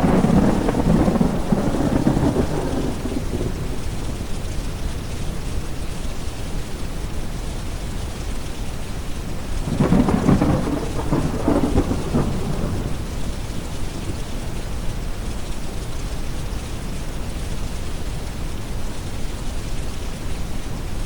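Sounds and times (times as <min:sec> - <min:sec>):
thunder rumbling: 0:00.0 - 0:05.6, 0:09.4 - 0:15.2
low brown-noise hiss: 0:00.0 - 0:21.0
steady rain: 0:00.0 - 0:21.0.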